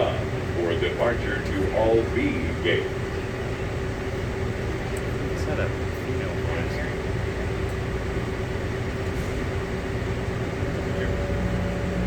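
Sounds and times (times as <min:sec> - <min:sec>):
train car rumble: 0:00.0 - 0:12.0
motor whine: 0:10.3 - 0:12.0.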